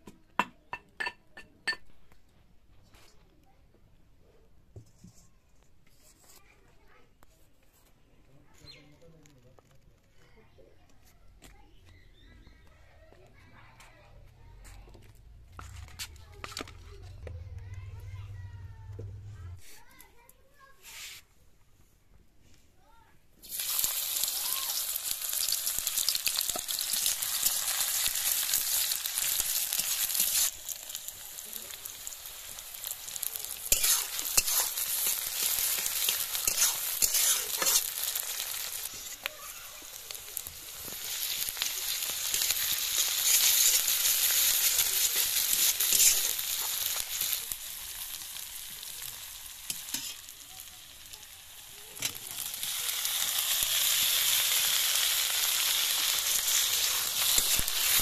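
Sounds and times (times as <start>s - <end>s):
onions sizzling in hot oil: 23.4s - 58.0s
metal spatula scraping and clinking: 33.5s - 39.3s, 41.2s - 47.4s, 49.7s - 50.3s, 56.2s - 58.0s.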